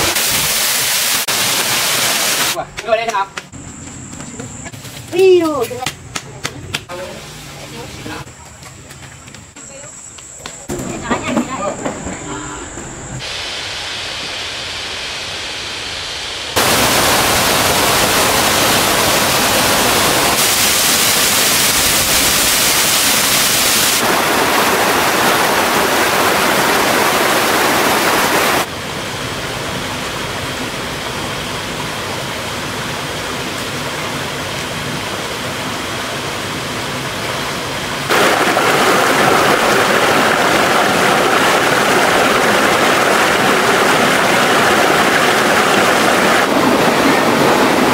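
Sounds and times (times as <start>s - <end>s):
stream and waterfall rushing: 0.0s - 2.6s, 13.2s - 47.9s.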